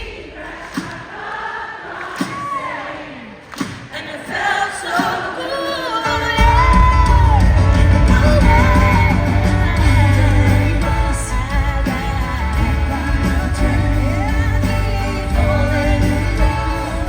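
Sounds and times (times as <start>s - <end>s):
crowd yelling: 0.0s - 10.1s
voices singing: 0.0s - 17.0s
band with heavy bass and drums: 6.3s - 17.0s.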